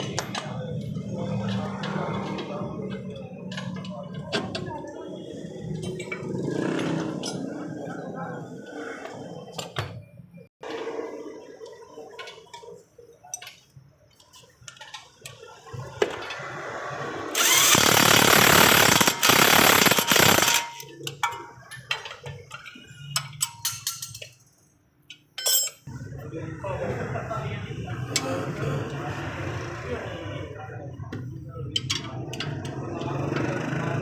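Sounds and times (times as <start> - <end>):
tools clinking and knocking: 0.0 - 4.8, 5.8 - 7.7, 12.1 - 16.4, 18.9 - 25.9
power tool running: 17.4 - 20.6.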